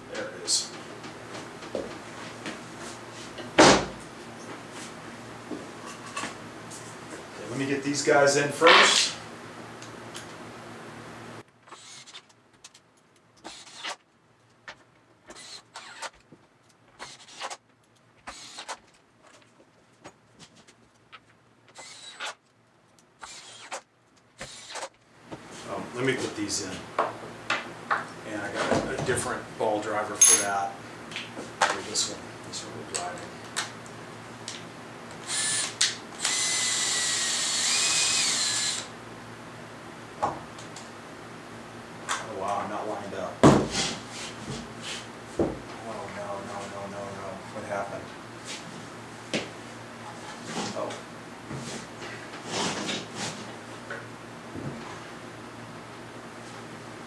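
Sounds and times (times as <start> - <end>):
metal bolts clinking and scraping: 30.2 - 30.7
power drill motor whine: 35.2 - 39.0.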